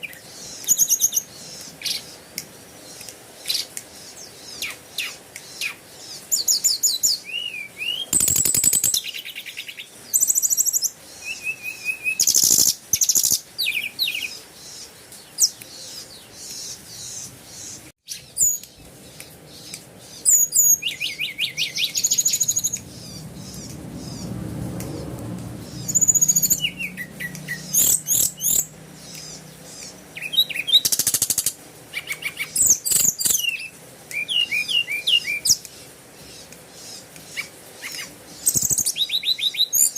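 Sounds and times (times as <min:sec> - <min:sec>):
small birds chirping and trilling: 0:00.0 - 0:39.9
low hum: 0:20.9 - 0:30.1.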